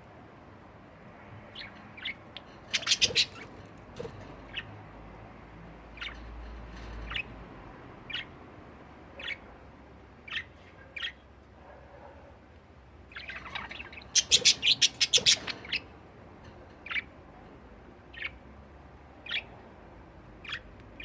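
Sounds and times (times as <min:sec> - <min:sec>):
budgerigars chirping: 0:01.5 - 0:03.6, 0:04.4 - 0:04.7, 0:05.9 - 0:06.3, 0:07.0 - 0:07.3, 0:08.1 - 0:08.4, 0:09.1 - 0:09.5, 0:10.2 - 0:11.3, 0:13.1 - 0:16.0, 0:16.8 - 0:17.1, 0:18.1 - 0:18.4, 0:19.2 - 0:19.6, 0:20.4 - 0:20.7.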